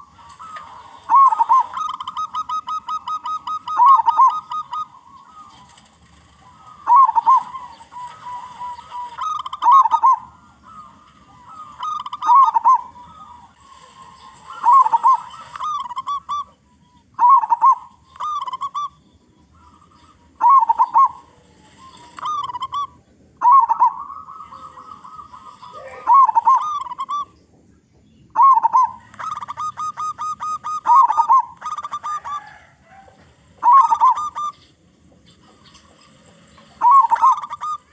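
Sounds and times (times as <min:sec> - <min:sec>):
dove cooing: 0:00.0 - 0:27.4, 0:28.3 - 0:37.9.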